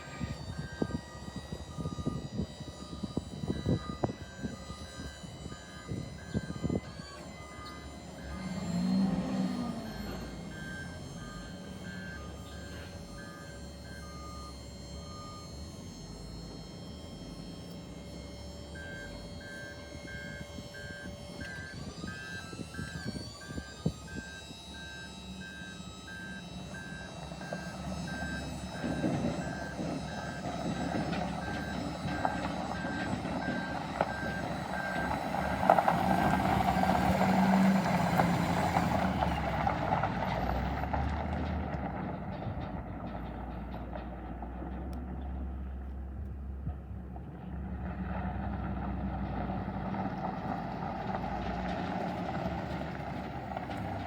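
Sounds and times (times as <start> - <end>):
reversing alarm beeping: 0.0 - 42.6
truck engine running: 0.0 - 54.0.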